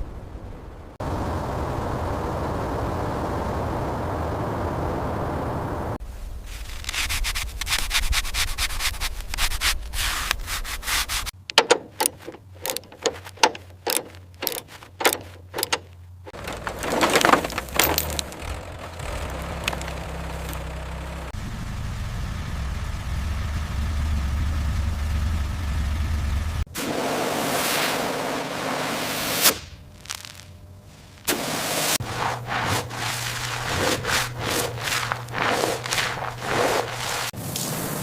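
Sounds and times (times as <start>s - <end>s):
rubbing strokes on metal: 6.8s - 15.7s, 31.8s - 37.4s
low hum: 15.9s - 26.7s.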